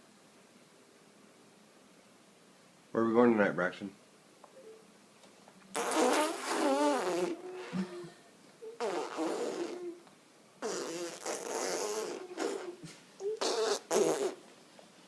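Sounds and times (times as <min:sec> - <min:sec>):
child blowing raspberries: 0:05.7 - 0:14.4.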